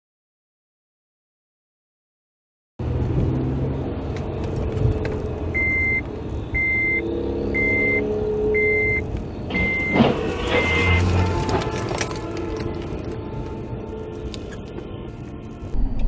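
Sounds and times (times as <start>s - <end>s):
vehicle running with road noise: 2.8s - 16.0s
electronic warning beeps: 5.6s - 11.0s.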